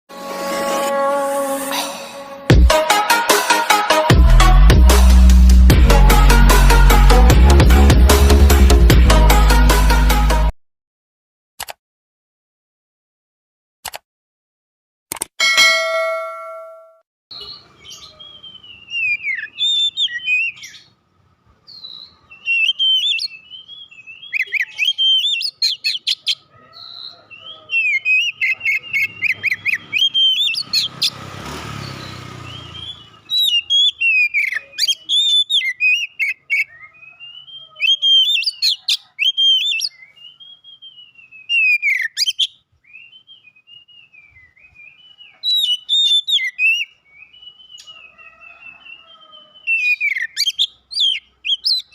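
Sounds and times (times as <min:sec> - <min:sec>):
bird whistling song with trills: 0:17.3 - 0:20.9, 0:21.7 - 0:30.9, 0:31.9 - 0:51.9.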